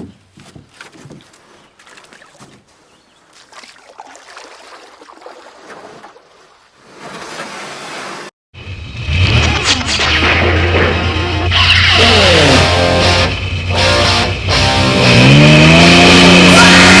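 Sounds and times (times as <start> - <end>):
water lapping around boat: 0.6 - 8.3.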